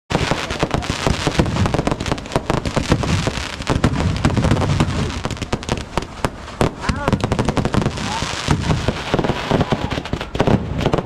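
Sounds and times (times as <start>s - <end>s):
sharp cracks and bangs: 0.1s - 11.0s.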